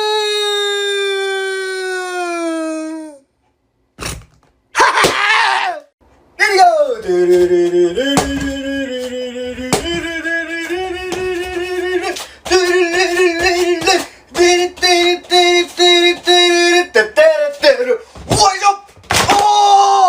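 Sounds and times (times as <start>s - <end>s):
person singing: 6.7s - 17.9s.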